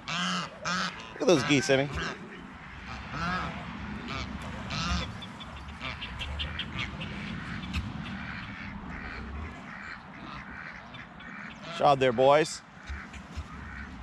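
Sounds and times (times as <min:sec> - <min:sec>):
ducks quacking: 0:00.0 - 0:14.0
geese honking: 0:00.0 - 0:14.0.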